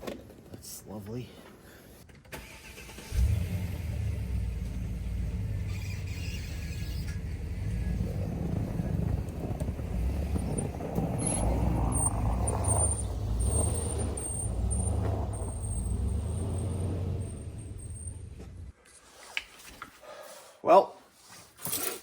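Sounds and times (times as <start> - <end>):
vehicle engine rumbling: 3.2 - 18.7.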